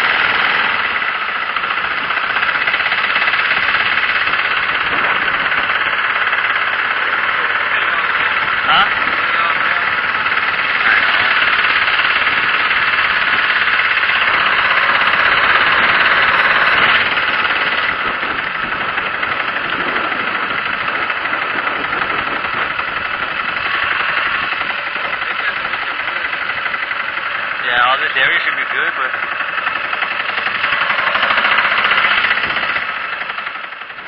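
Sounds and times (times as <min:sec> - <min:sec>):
boat motor running: 0:00.0 - 0:34.0.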